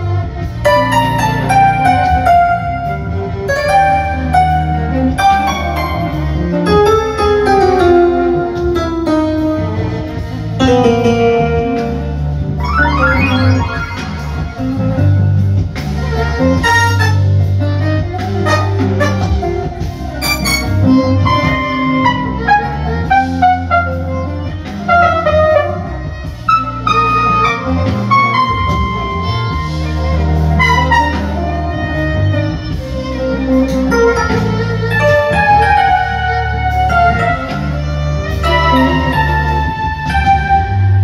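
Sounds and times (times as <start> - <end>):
bass guitar: 0.0 - 41.0
sliding melody line: 10.6 - 15.4, 35.0 - 39.8.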